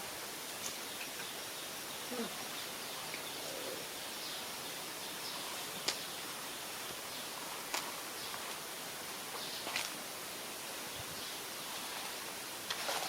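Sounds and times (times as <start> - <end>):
outdoor ambient hiss: 0.0 - 13.0
faint bird chirps: 0.8 - 7.4.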